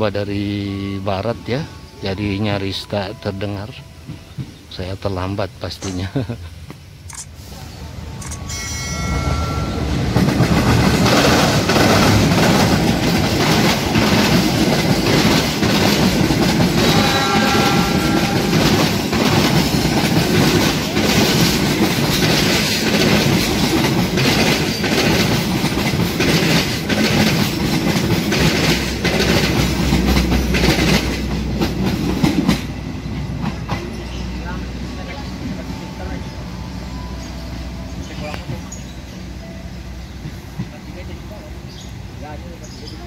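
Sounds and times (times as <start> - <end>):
brief high tone: 8.2 - 10.1
train wheels clattering over joints: 9.9 - 35.6.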